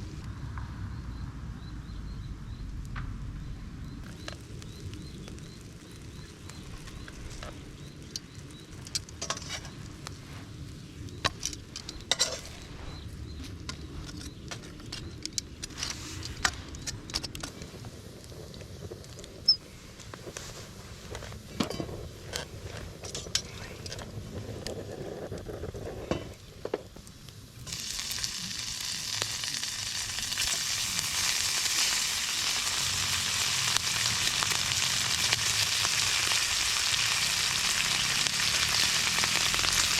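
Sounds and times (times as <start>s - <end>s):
clicks and crackles: 4.0s - 39.9s
loud sizzling: 27.6s - 39.9s.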